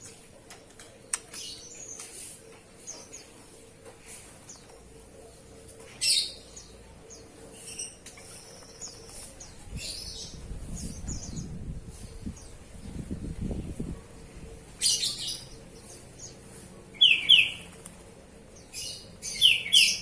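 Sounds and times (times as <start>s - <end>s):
bird chirping: 14.8s - 17.7s, 18.6s - 20.0s.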